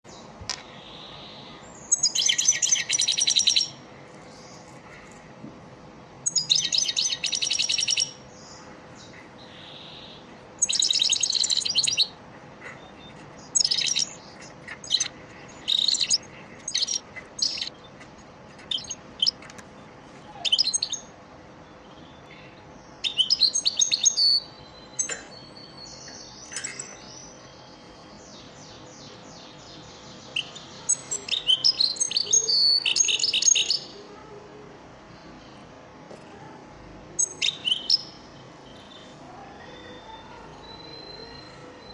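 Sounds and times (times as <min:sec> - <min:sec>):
goldfinch twittering: 0:13.6 - 0:17.7.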